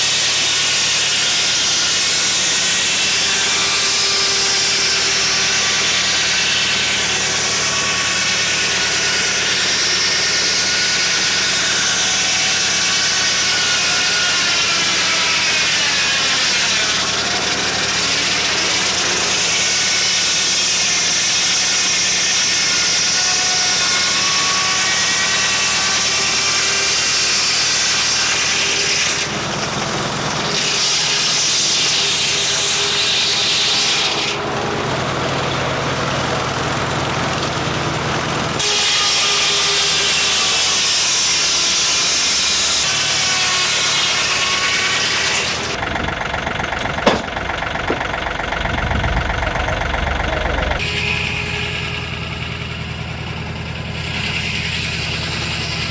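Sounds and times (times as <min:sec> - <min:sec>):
circular saw blade cutting wood: 0:00.0 - 0:55.9
sawmill engine running: 0:00.0 - 0:55.9
sharp knock: 0:47.0 - 0:48.0.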